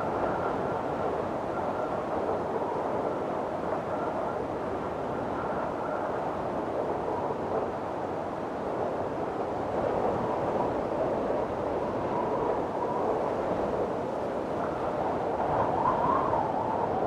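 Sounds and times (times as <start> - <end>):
strong wind blowing: 0.0 - 17.0.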